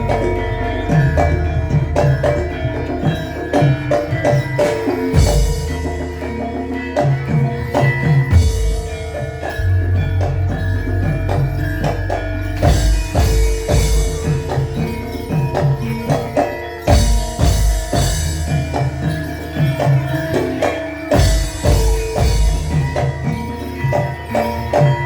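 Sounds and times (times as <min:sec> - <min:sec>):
hand drums with deep strokes: 0:00.0 - 0:25.0
metal mallet percussion: 0:00.0 - 0:25.0
ringing tuned gongs: 0:00.0 - 0:25.0.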